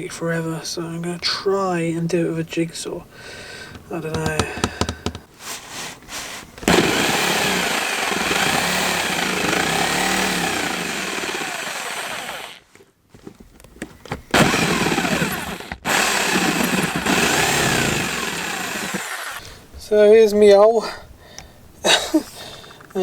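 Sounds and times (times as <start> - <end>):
jigsaw cutting wood: 6.6 - 12.6, 14.3 - 19.4.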